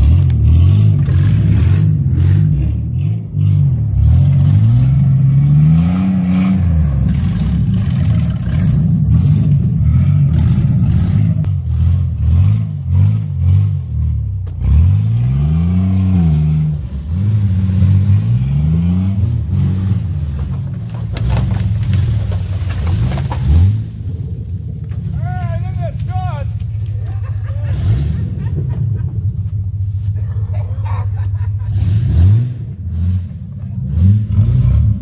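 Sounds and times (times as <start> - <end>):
car engine revving: 0.0 - 35.0
rattling and knocks: 20.2 - 23.8.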